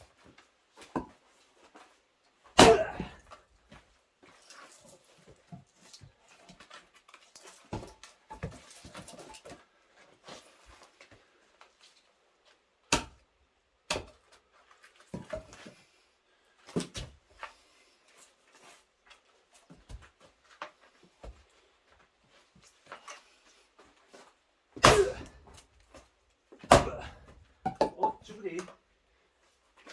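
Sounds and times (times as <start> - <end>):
axe splitting firewood: 2.6 - 3.4, 12.9 - 13.2, 13.9 - 14.2, 24.8 - 25.7, 26.6 - 28.1.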